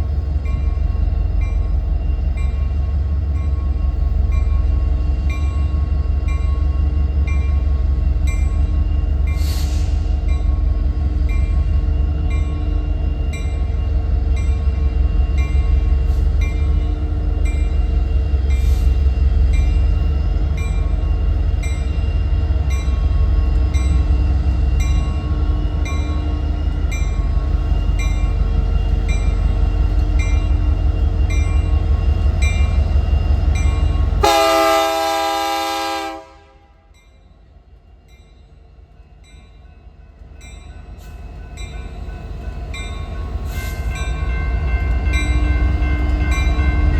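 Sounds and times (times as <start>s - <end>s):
train rumbling and clicking: 0.0s - 46.9s
locomotive horn: 34.2s - 36.9s.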